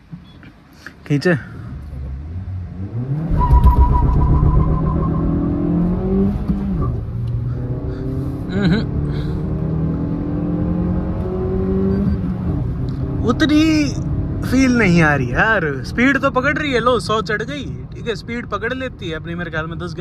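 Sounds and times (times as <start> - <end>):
car engine accelerating: 2.0 - 13.4.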